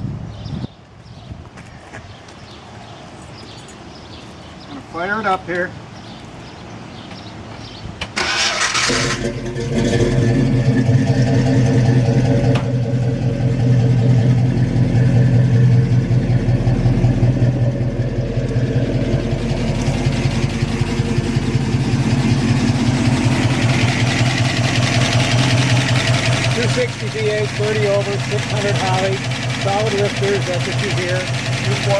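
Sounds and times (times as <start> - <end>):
engine lifters ticking: 8.0 - 31.9
starter motor cranking: 8.2 - 10.4
engine pulsing idle: 8.2 - 31.9.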